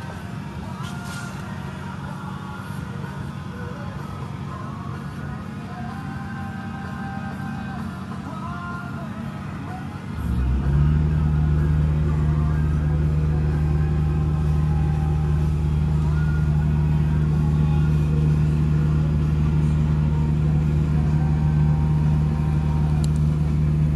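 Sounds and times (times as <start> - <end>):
diesel engine droning: 0.0 - 23.9.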